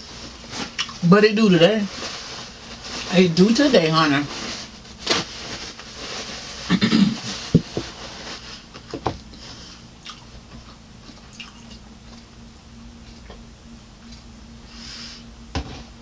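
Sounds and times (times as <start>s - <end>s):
person chewing food: 10.0s - 12.3s.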